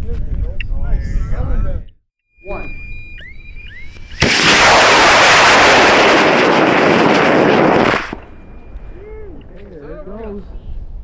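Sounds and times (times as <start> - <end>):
rocket motor roaring: 3.9 - 8.3.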